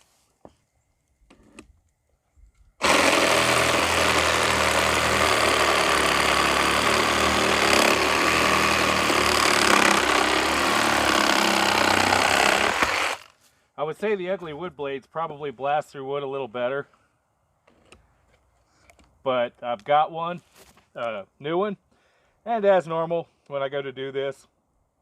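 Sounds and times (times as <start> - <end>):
reciprocating saw cutting wood: 2.8 - 13.4.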